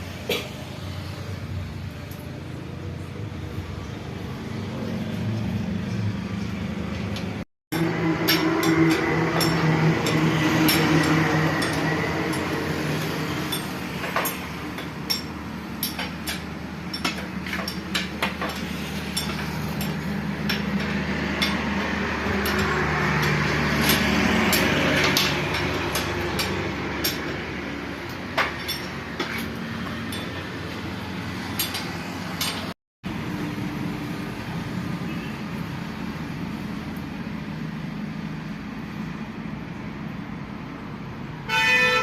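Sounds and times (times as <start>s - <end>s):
engine hum: 0.0s - 42.0s
metallic tool clinks and taps: 7.8s - 21.6s.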